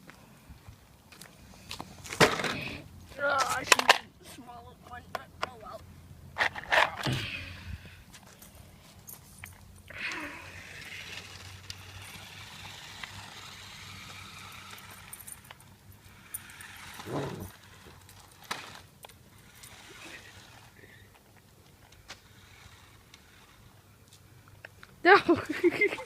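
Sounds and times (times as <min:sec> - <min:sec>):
toy truck motor humming: 0:09.9 - 0:21.2, 0:21.9 - 0:24.5.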